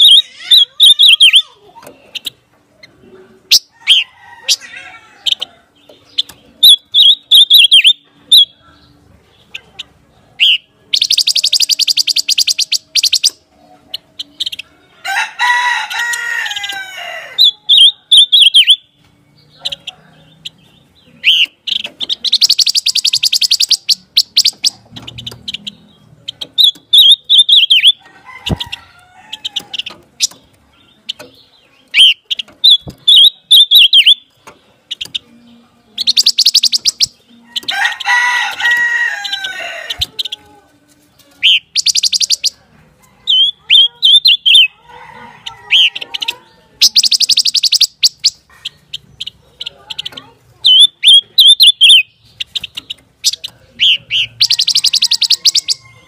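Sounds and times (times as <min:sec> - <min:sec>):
falling multi-pitch bird call: 0:00.0 - 0:02.3, 0:06.2 - 0:08.5, 0:14.2 - 0:18.9, 0:21.2 - 0:25.8, 0:26.4 - 0:30.4, 0:31.9 - 0:34.3, 0:36.0 - 0:40.5, 0:41.4 - 0:42.6, 0:43.3 - 0:44.8, 0:45.6 - 0:48.5, 0:50.6 - 0:56.0
bird chirping phrases: 0:00.0 - 0:56.0.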